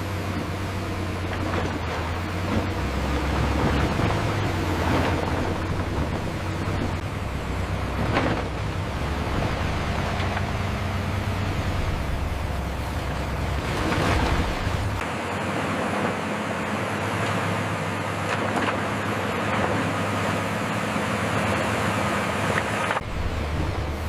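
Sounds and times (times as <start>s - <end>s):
heavy machinery engine drone: 0.0s - 24.0s.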